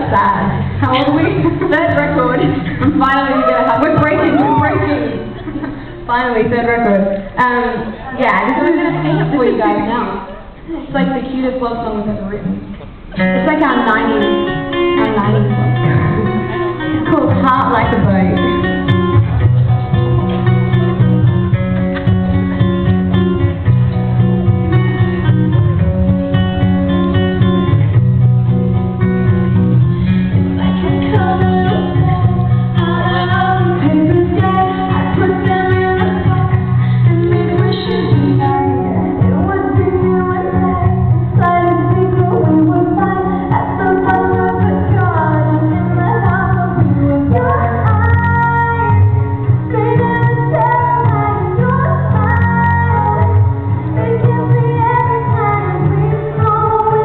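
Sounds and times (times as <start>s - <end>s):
woman singing: 0.0s - 5.4s, 13.2s - 18.8s, 30.5s - 57.0s
low musical accompaniment: 0.0s - 57.0s
acoustic guitar strumming: 12.4s - 57.0s.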